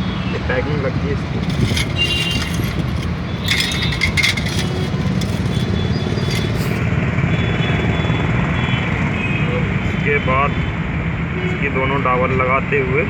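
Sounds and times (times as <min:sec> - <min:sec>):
motor vehicles rumbling: 0:00.0 - 0:07.4
metal parts clattering: 0:01.4 - 0:06.8.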